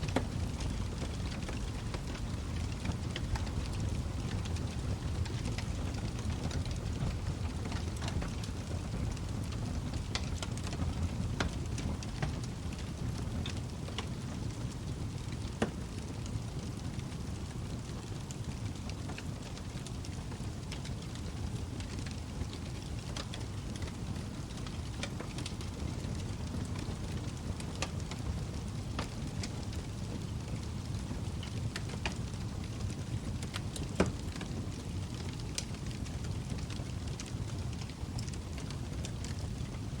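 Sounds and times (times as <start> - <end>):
fire crackling and popping: 0.0 - 40.0
log fire burning: 0.0 - 40.0.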